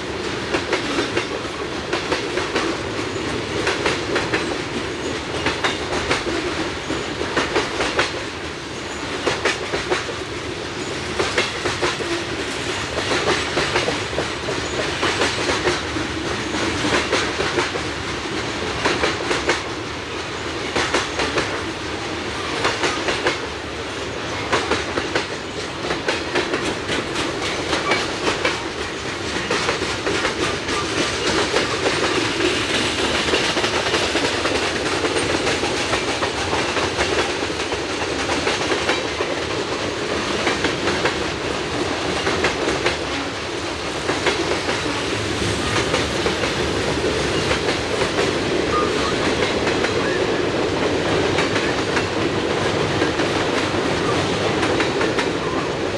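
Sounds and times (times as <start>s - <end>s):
train rumble: 0.0s - 55.9s
train wheels clicking over rail joints: 0.0s - 55.9s.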